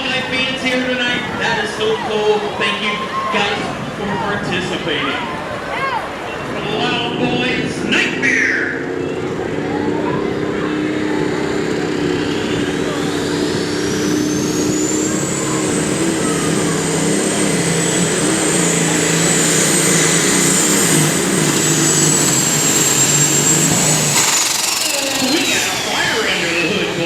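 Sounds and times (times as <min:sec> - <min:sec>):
high turbo whine: 0:00.0 - 0:27.0
diesel tractor engine under load: 0:05.4 - 0:27.0.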